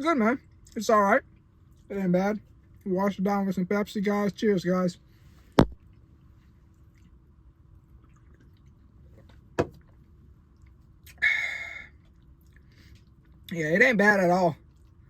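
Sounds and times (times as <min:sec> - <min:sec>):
person sipping a drink: 0:08.0 - 0:08.8
breathy exhale: 0:11.2 - 0:12.0.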